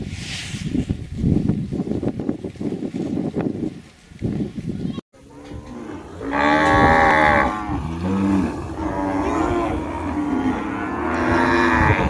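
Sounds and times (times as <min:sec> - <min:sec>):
cattle mooing: 0:05.2 - 0:12.0.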